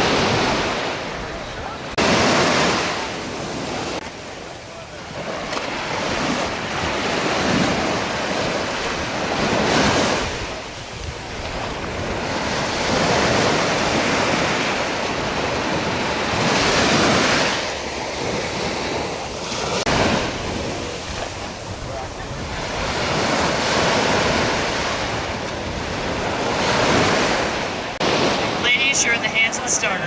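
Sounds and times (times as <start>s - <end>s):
ocean surf washing onto beach: 0.0s - 30.0s
wind on microphone: 5.9s - 28.6s.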